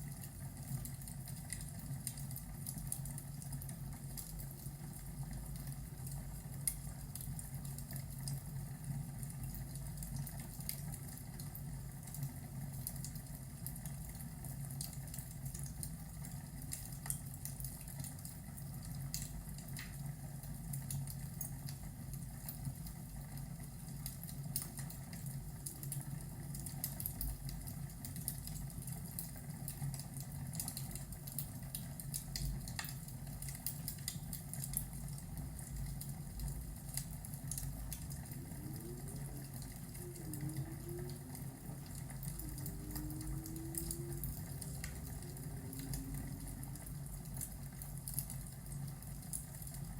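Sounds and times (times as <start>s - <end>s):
low fire rumble: 0.0s - 49.9s
fire crackling and popping: 16.6s - 49.9s.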